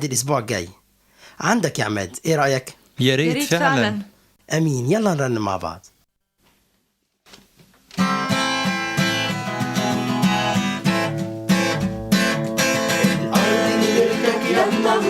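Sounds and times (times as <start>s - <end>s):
worship song with strummed guitar: 8.0s - 15.0s.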